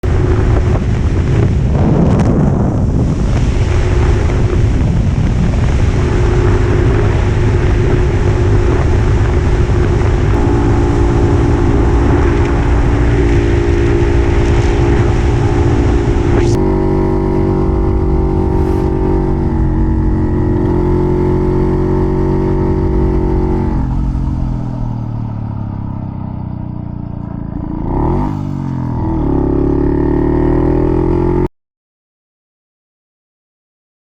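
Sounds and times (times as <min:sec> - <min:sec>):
wind noise on microphone: 0:00.0 - 0:26.1
two-stroke motorcycle engine: 0:03.8 - 0:18.1, 0:19.9 - 0:31.4.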